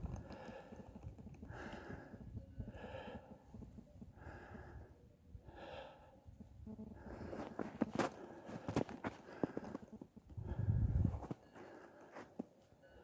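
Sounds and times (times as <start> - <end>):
person breathing hard: 0.1 - 3.5, 4.1 - 6.2.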